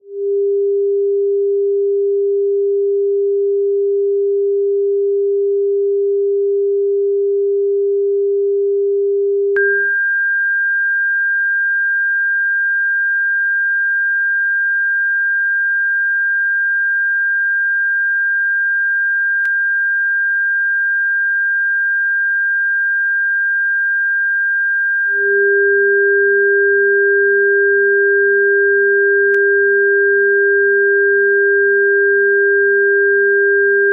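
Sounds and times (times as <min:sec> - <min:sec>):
steady low sine tone: 0:00.0 - 0:10.4, 0:24.0 - 0:33.9
steady high sine tone: 0:09.5 - 0:12.4, 0:22.8 - 0:33.9
click: 0:19.4 - 0:19.6.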